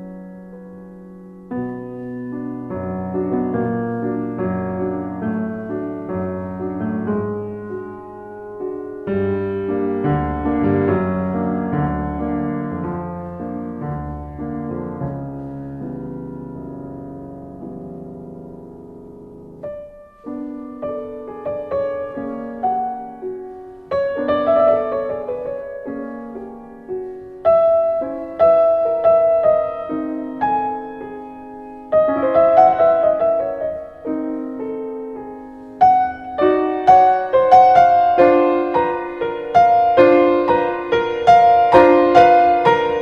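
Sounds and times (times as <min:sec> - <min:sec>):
gentle piano music: 0:00.0 - 0:43.0.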